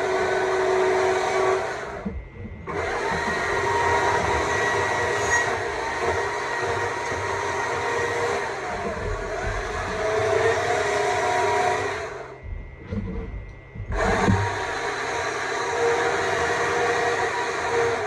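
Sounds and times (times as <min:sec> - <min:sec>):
battery chainsaw cutting wood: 0:02.7 - 0:12.3, 0:13.9 - 0:18.0.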